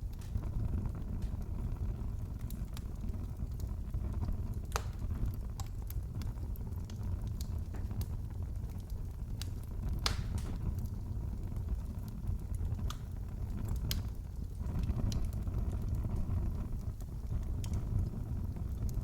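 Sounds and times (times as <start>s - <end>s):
fire crackling and popping: 0.0s - 19.0s
low rumble of burning: 0.0s - 19.0s.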